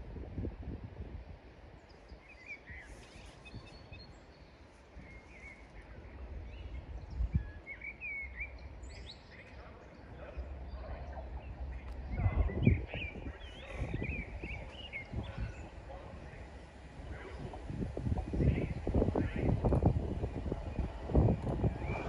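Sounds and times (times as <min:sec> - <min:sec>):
small birds chirping: 0:01.8 - 0:17.6
low background rumble: 0:09.6 - 0:22.0.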